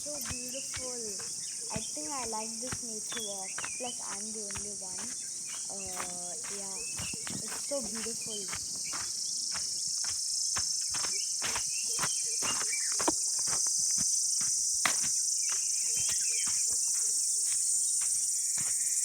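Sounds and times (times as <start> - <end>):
sharp ticks: 0.0 - 9.0
faint bird chirps: 0.0 - 13.6, 15.4 - 19.0
insects buzzing chorus: 0.0 - 19.0.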